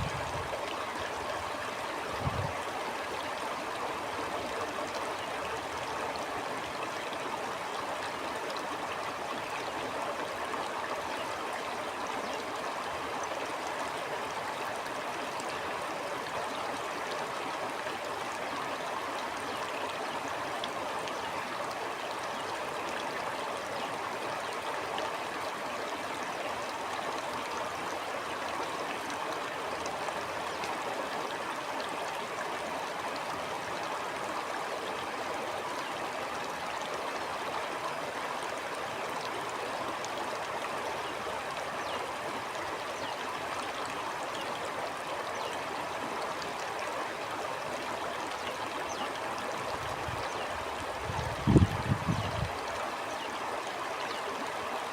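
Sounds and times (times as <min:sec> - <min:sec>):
stream flowing: 0:00.0 - 0:54.9.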